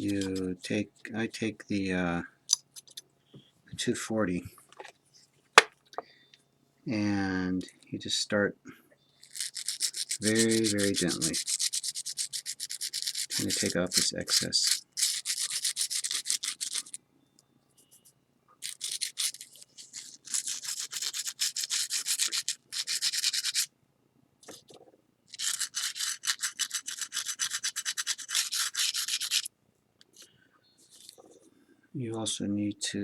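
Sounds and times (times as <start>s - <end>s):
sandpaper rubbing back and forth: 9.5s - 14.1s, 25.4s - 29.5s.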